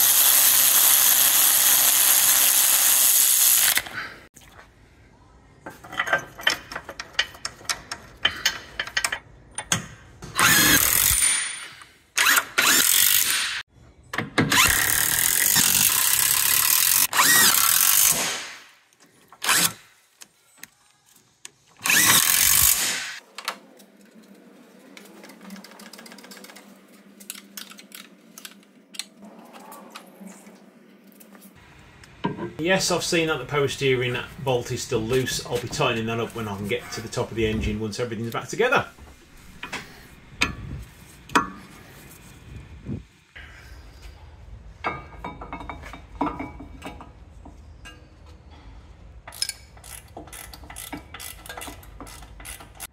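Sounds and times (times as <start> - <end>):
power tool driving bolts: 10.3 - 13.6, 14.4 - 18.6, 21.8 - 23.2, 49.3 - 52.9.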